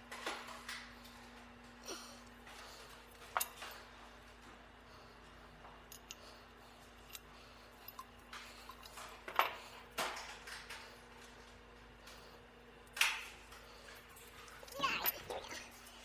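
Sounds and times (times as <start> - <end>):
low steady hum: 13.6 - 16.0
metal tools clinking: 14.1 - 16.0.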